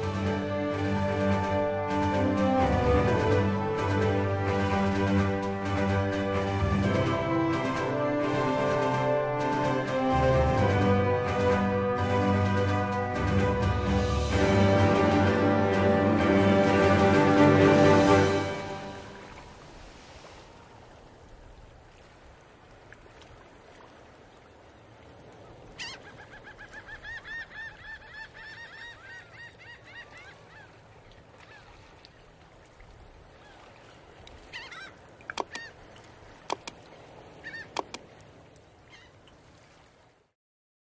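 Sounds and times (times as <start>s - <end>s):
bird rapid repeated calls: 34.6s - 35.7s.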